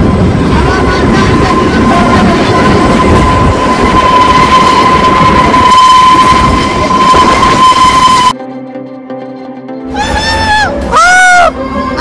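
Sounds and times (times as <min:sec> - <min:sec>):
high-pitched whine: 0:00.0 - 0:08.4.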